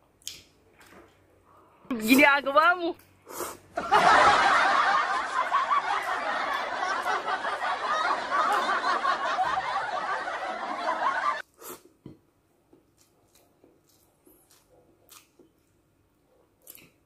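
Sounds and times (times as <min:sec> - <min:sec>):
laugh track: 0:03.8 - 0:11.4.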